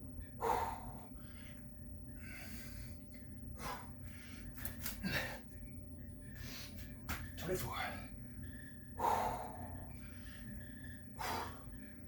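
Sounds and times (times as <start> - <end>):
person breathing hard: 0.4 - 3.0, 3.6 - 5.5, 7.9 - 12.0.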